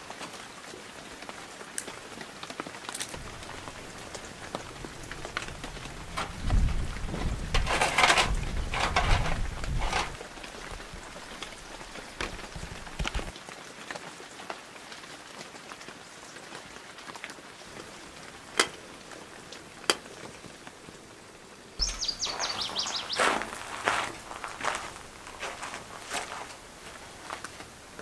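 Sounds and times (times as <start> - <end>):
steady rain falling: 0.0 - 28.0
foil windscreen crinkling: 3.0 - 13.3, 21.8 - 27.7.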